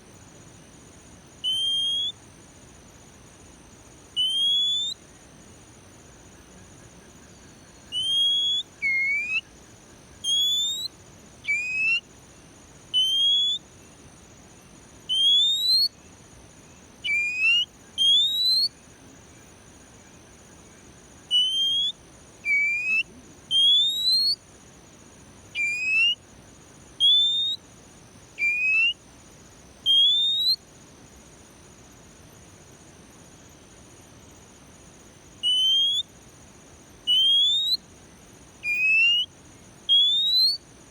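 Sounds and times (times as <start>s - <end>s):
thin high-pitched hiss: 0.0s - 19.3s
songbird whistling: 1.4s - 2.2s, 4.2s - 5.0s, 7.4s - 9.5s, 10.2s - 12.0s, 12.9s - 13.6s, 15.1s - 16.0s, 17.0s - 18.8s, 21.3s - 24.4s, 25.5s - 26.2s, 27.0s - 27.6s, 28.4s - 29.0s, 29.8s - 30.6s, 35.4s - 36.1s, 37.1s - 37.8s, 38.6s - 40.6s.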